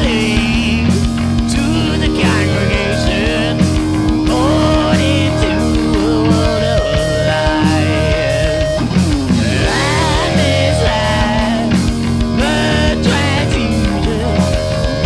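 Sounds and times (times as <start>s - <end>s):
electric guitar bending notes: 0.0s - 15.0s
live rock band playing: 0.0s - 15.0s.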